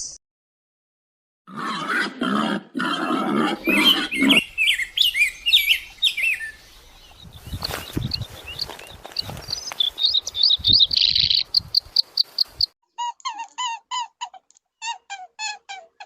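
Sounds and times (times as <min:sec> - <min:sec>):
harsh animal calls: 0:01.5 - 0:05.2
small birds chirping: 0:03.6 - 0:12.8.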